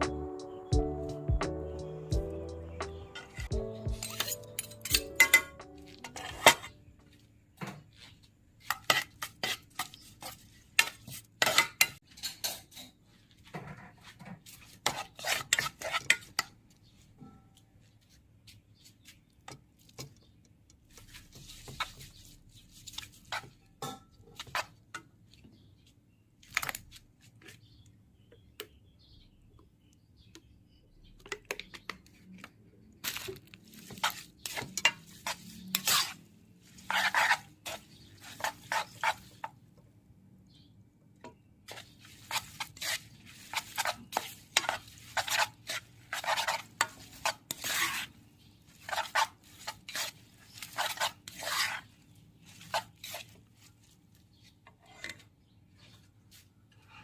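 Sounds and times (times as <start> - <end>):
utensils clinking against dishes: 3.1 - 6.8.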